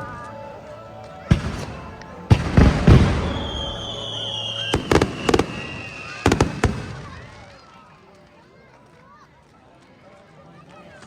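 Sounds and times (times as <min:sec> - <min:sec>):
firework whistle gliding down: 0:00.0 - 0:07.5
fireworks crackling: 0:00.0 - 0:08.4
fireworks booming: 0:01.2 - 0:07.6.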